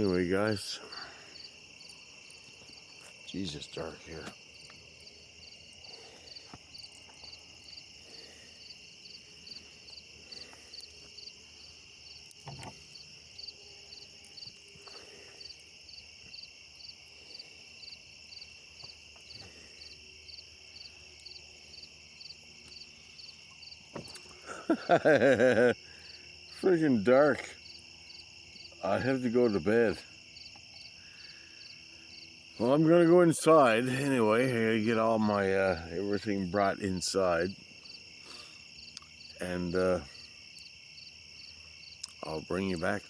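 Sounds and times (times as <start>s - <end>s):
crickets trilling: 0.0s - 43.0s
pulsed cricket chirp: 0.0s - 43.0s.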